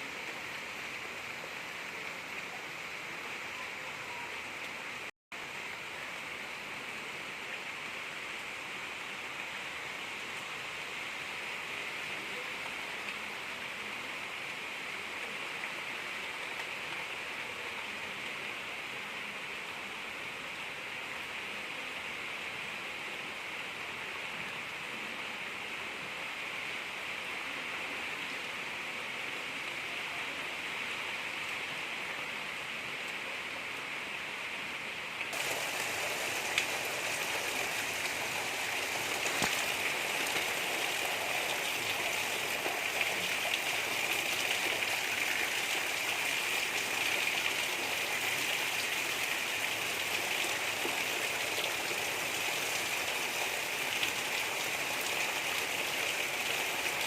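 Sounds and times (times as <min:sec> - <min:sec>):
gentle rain pattering: 0:00.0 - 0:57.0
raindrops ticking: 0:35.4 - 0:40.6.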